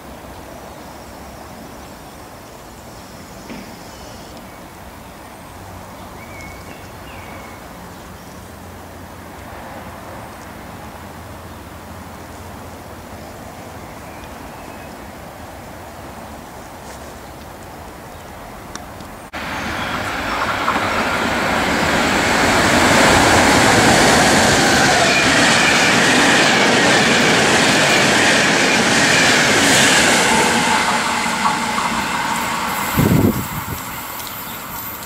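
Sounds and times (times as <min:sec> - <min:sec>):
train wheels clattering on rails: 0:19.4 - 0:35.0.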